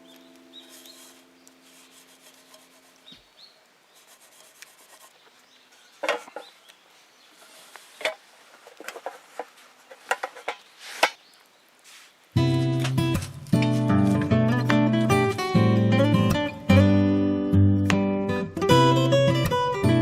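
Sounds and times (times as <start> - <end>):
scraping and rubbing: 0.6 - 3.2, 3.9 - 6.7, 7.3 - 11.2
background music: 12.4 - 20.0.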